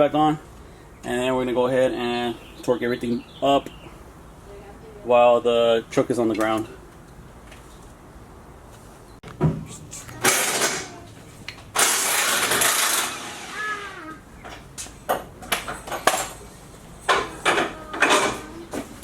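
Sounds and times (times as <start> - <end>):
tools and metal parts clanking: 10.2 - 11.0, 11.6 - 13.6, 14.4 - 19.0
power tool bursts: 11.7 - 14.0.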